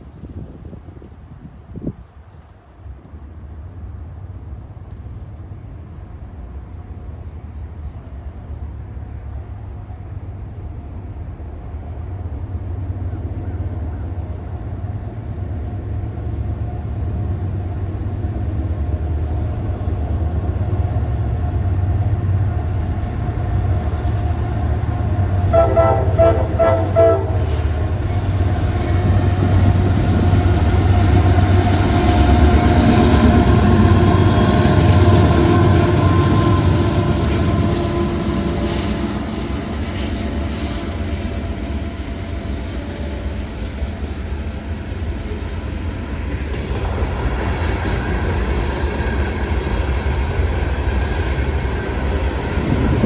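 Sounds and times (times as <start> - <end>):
train rumble: 0.0 - 53.0
locomotive horn short pulses: 25.5 - 27.8.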